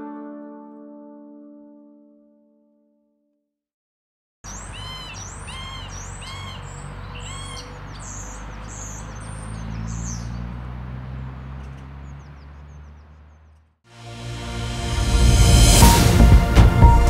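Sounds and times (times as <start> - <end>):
bird calling: 4.5 - 13.6.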